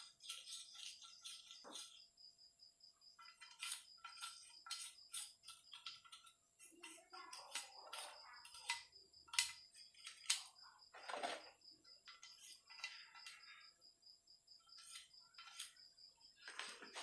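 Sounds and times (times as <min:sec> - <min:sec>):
metal parts clicking and scraping: 0:03.2 - 0:06.4.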